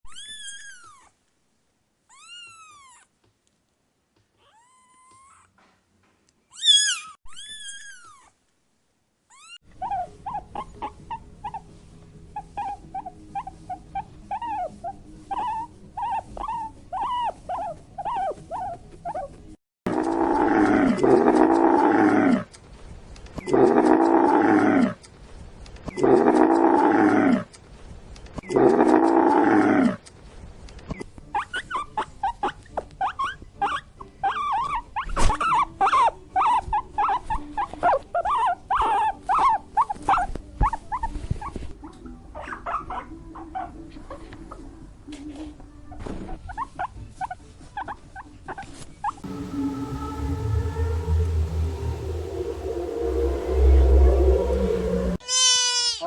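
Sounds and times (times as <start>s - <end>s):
loud long animal calls: 49.2s - 55.6s.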